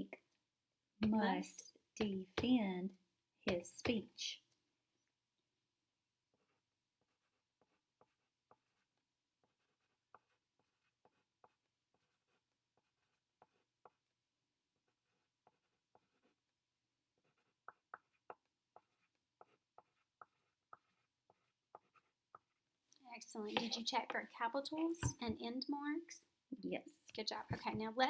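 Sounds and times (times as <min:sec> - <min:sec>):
pen writing on paper: 0:06.3 - 0:25.2.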